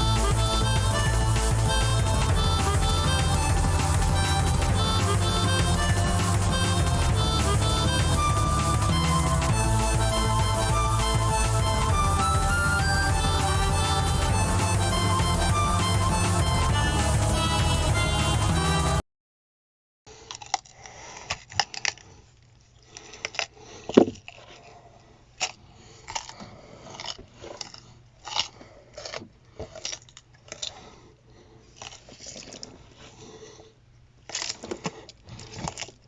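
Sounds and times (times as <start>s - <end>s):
rodents gnawing and scrabbling: 20.3s - 33.6s, 34.2s - 36.0s.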